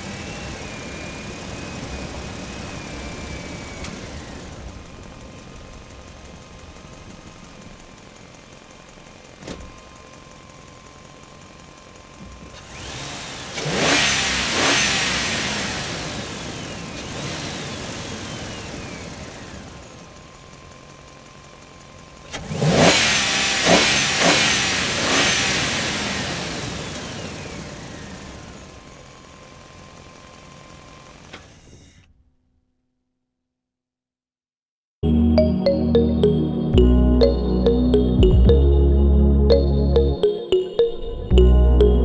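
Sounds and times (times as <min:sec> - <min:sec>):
engine revving: 0:12.8 - 0:16.5, 0:22.4 - 0:26.8.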